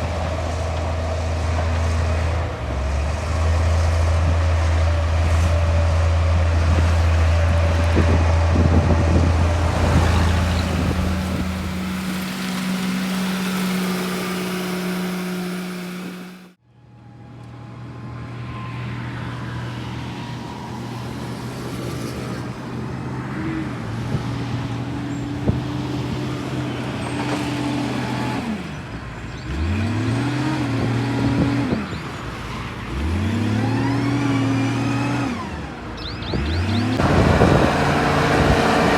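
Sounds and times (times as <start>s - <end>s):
heavy diesel engine revving: 0.0s - 16.6s, 25.3s - 32.0s, 32.8s - 38.9s.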